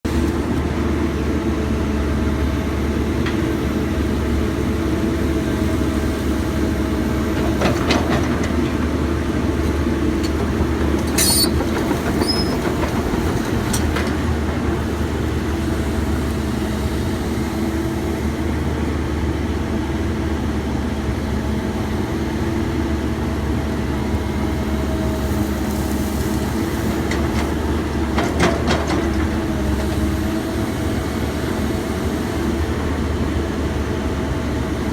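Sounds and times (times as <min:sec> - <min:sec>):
excavator diesel engine running: 0:00.1 - 0:34.9
metallic clanks and knocks: 0:07.4 - 0:09.1.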